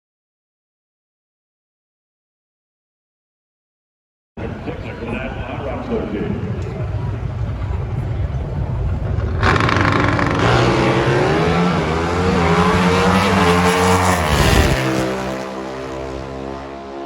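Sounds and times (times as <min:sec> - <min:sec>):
racing motorcycles accelerating: 0:04.4 - 0:17.0.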